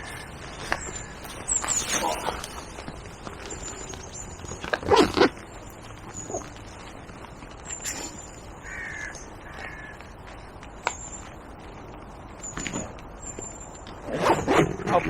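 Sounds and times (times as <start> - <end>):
bird calling: 0.0 - 7.0, 7.6 - 11.4
outdoor background noise: 0.0 - 15.0.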